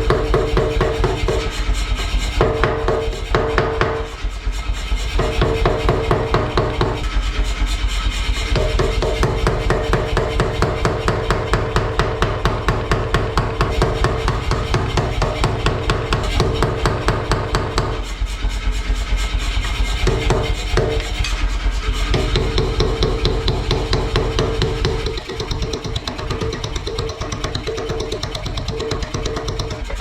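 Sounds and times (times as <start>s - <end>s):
hammer blows on hot iron: 8.4s - 18.2s, 22.0s - 30.0s
steady hum: 8.4s - 18.9s, 19.6s - 30.0s.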